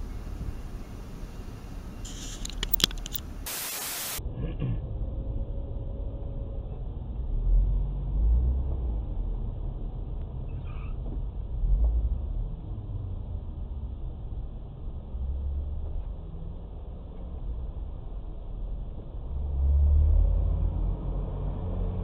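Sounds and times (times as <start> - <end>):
low vehicle rumble: 0.0 - 3.5, 4.2 - 22.0
brief burst of hiss: 2.0 - 2.6, 3.5 - 4.2
sharp click: 2.1 - 3.3.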